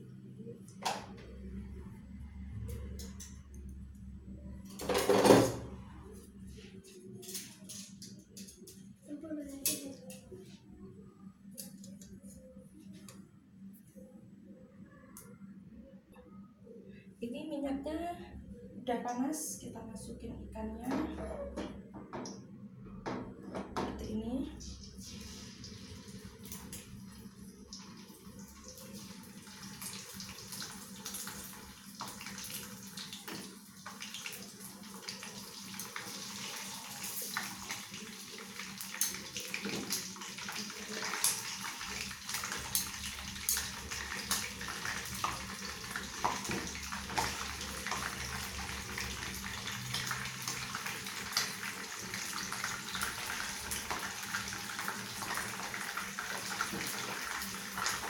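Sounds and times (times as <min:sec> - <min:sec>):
fish deep-frying in oil: 0:24.6 - 0:58.0.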